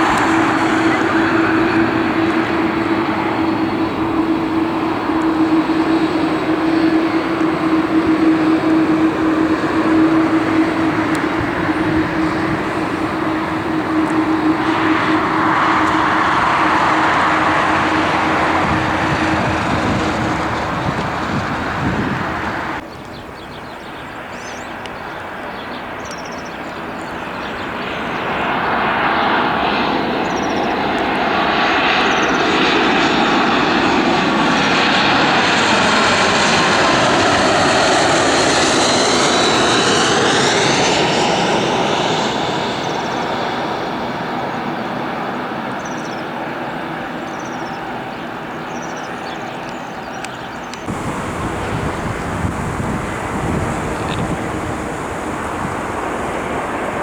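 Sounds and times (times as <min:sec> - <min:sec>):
aircraft approaching: 0:00.0 - 0:22.9, 0:27.2 - 0:45.7, 0:50.8 - 0:57.0
airliner engine roar: 0:00.0 - 0:57.0.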